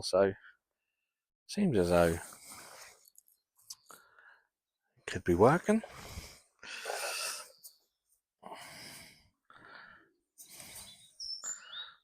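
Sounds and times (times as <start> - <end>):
person breathing out heavily: 5.8 - 7.6, 8.4 - 12.0.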